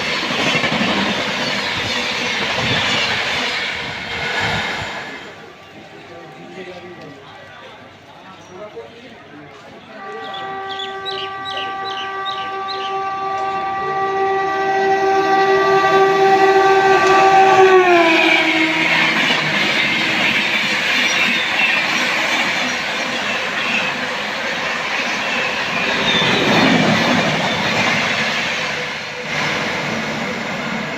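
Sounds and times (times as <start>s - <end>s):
train coaches clattering past: 0.0s - 30.9s
train horn: 9.8s - 22.0s, 23.0s - 30.9s.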